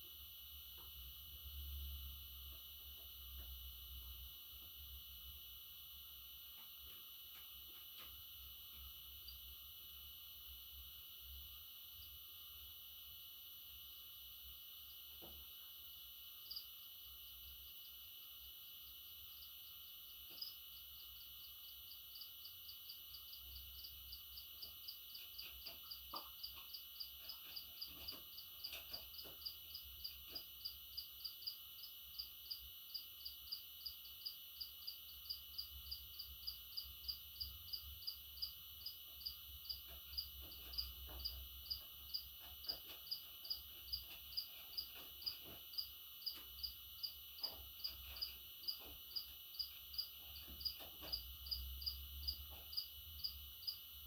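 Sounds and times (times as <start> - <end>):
faint high hum: 0.0 - 54.0.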